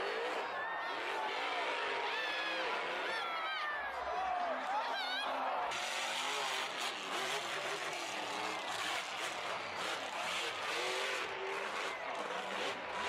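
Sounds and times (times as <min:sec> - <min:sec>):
truck engine revving: 0:05.7 - 0:13.0.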